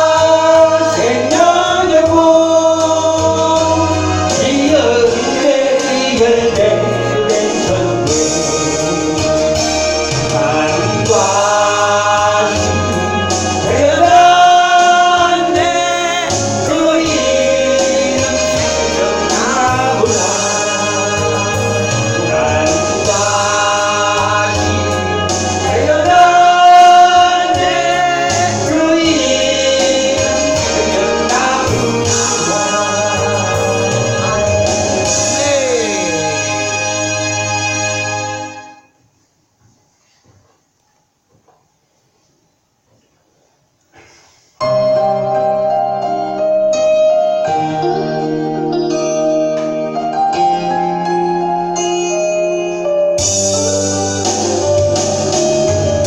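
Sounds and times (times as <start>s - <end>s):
congregation singing a hymn: 0.0s - 38.5s
keyboard accompaniment: 0.0s - 39.0s, 44.6s - 56.0s.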